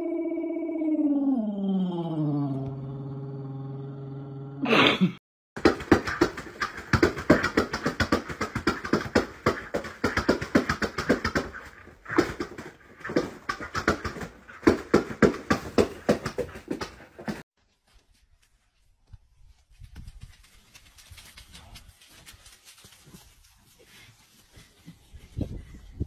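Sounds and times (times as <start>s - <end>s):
low held note: 0.0s - 4.6s.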